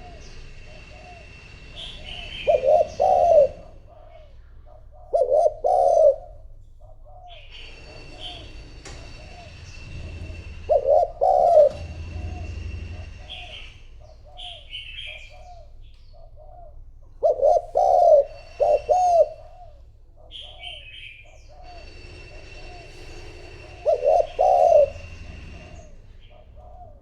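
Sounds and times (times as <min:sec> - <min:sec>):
dove cooing: 0:00.0 - 0:27.0
small bird chirping: 0:17.5 - 0:21.9.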